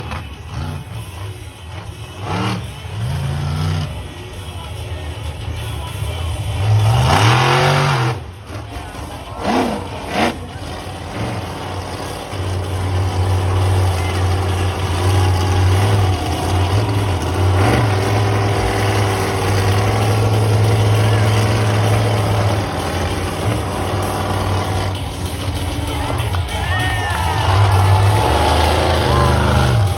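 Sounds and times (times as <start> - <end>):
monster truck engine revving: 0.0 - 29.9.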